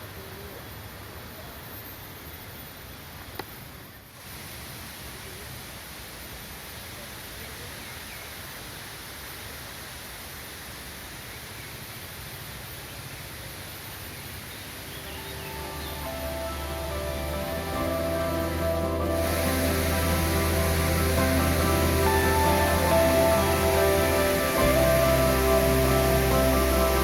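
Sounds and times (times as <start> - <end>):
river water rushing: 14.8 - 27.0.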